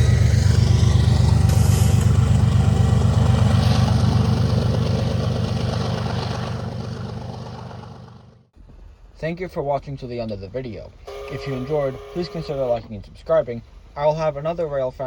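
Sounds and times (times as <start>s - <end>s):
diesel locomotive engine throbbing: 0.0s - 9.1s, 11.0s - 14.0s.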